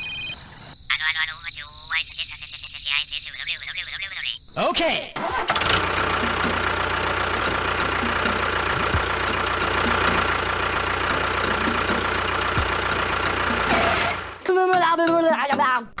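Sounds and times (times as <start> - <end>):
small engine idling: 5.2 - 14.4.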